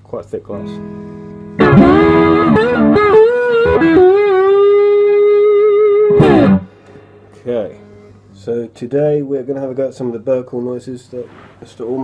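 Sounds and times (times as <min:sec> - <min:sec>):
overdriven electric slide guitar: 0:00.6 - 0:07.2.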